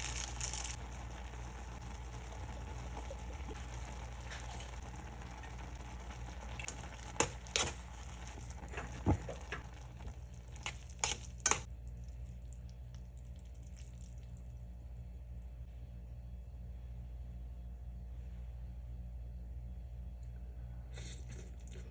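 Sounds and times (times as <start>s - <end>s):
food sizzling in a pan: 0.0s - 11.7s.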